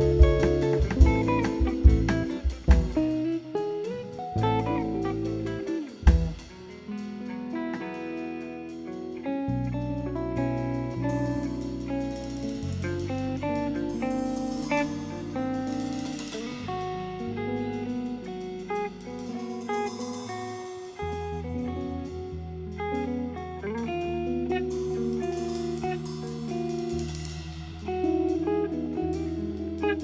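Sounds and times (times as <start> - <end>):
walking bass line: 0.0 - 3.4, 4.3 - 6.6
guitar melody: 0.0 - 30.0
cymbals splashing: 24.8 - 29.3.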